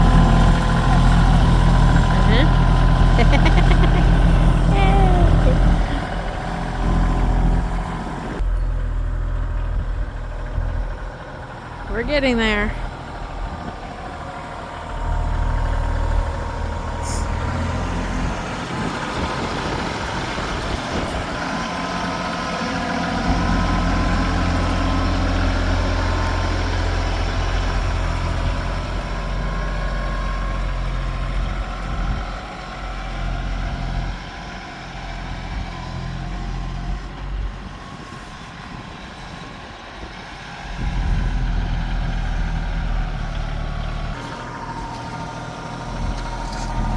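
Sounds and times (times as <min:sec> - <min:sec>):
tractor engine droning: 0:00.0 - 0:46.9.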